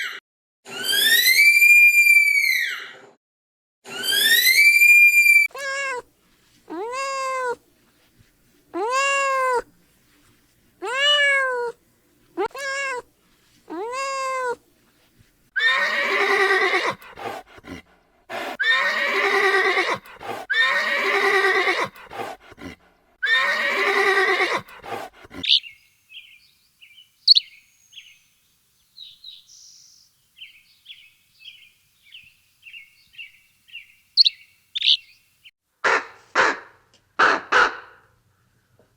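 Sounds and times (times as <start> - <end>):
animal cries: 3.9 - 6.1, 6.7 - 7.6, 8.8 - 9.7, 10.8 - 11.8, 12.4 - 13.1, 13.7 - 14.6, 15.6 - 17.4, 18.4 - 25.7, 34.2 - 35.0
harsh animal calls: 15.6 - 25.7, 34.2 - 35.0
soft quick chirping: 27.3 - 28.1, 34.2 - 35.1.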